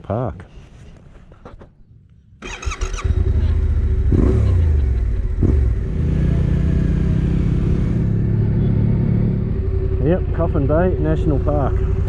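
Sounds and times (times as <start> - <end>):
motorcycle engine accelerating: 2.4 - 12.0.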